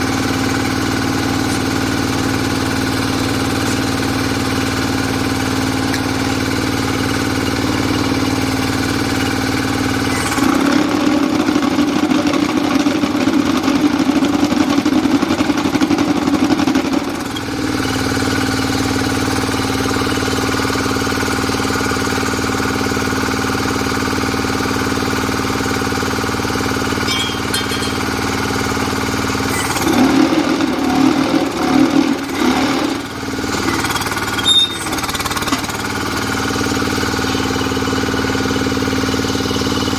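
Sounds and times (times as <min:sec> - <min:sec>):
diesel engine humming: 0:00.0 - 0:39.9
rattling vibration: 0:25.7 - 0:38.0.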